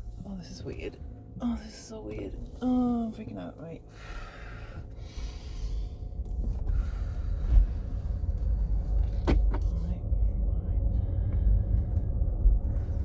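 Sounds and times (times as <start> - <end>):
faint steady hum: 0.0 - 13.0
person breathing: 3.9 - 8.6
road and tyre rumble: 4.8 - 13.0.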